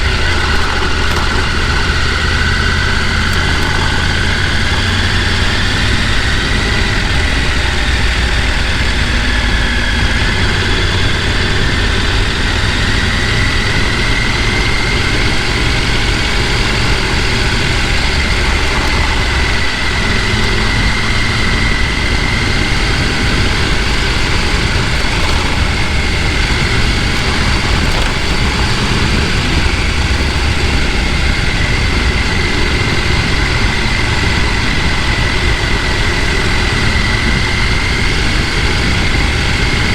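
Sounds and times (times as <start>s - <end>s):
stream flowing over rocks: 22.8s - 31.4s.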